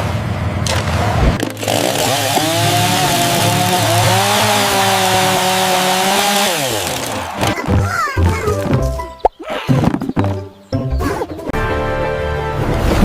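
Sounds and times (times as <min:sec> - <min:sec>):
power tool motor running: 0:01.4 - 0:07.5.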